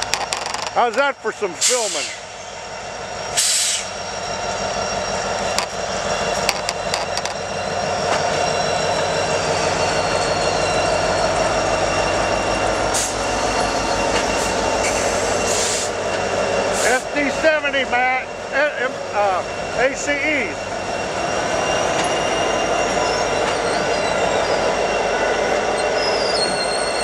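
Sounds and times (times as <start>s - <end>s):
train rumbling on rails: 0.0s - 27.0s.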